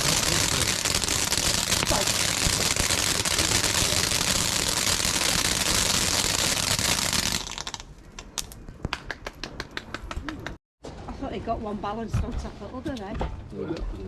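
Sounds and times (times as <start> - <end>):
firework hissing and crackling: 0.0 - 7.9.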